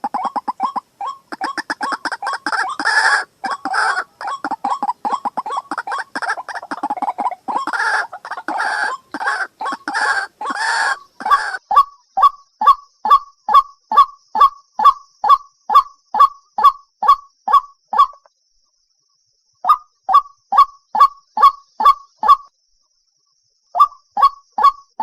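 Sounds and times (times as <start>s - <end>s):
waterhen calling: 0.0s - 11.8s.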